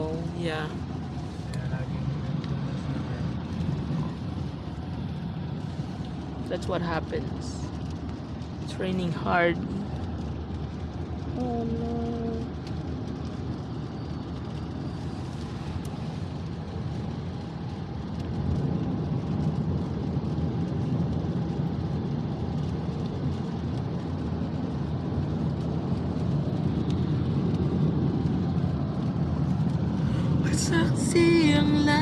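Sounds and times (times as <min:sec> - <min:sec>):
car cabin road noise: 0:00.0 - 0:32.0
hard rain: 0:00.0 - 0:32.0
tyres on wet road: 0:00.0 - 0:32.0.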